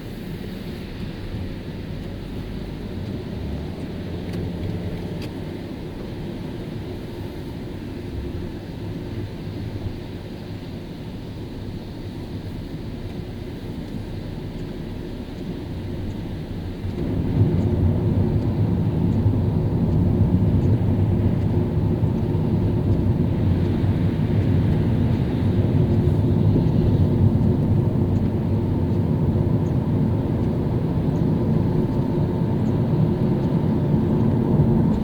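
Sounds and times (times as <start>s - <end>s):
car driving on a wet road: 0.0s - 35.0s.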